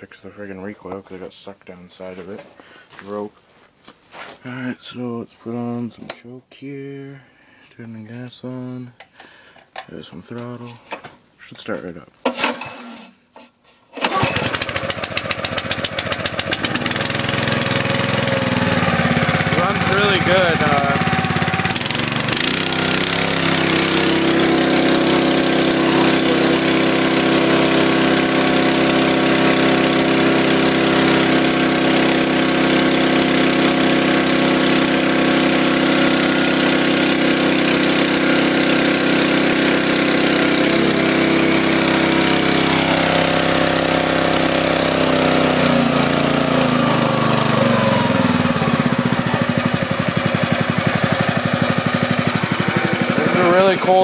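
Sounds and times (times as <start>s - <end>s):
small engine running: 14.0s - 54.0s.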